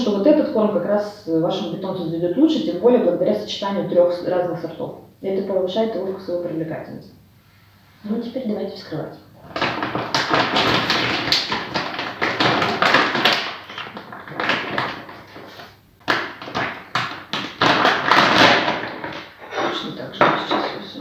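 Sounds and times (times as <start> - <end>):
dog food bag crinkling: 9.4 - 19.8.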